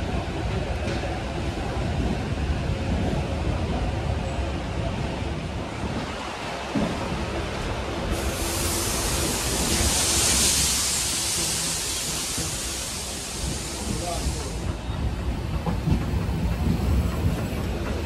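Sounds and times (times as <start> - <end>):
train coach rumbling: 0.0 - 18.0
loud hiss: 8.1 - 14.8.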